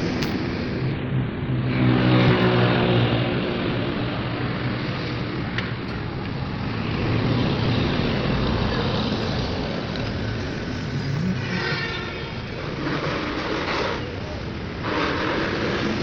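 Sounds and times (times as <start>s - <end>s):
road noise: 0.0s - 16.0s
vehicle engine rumble: 0.0s - 16.0s.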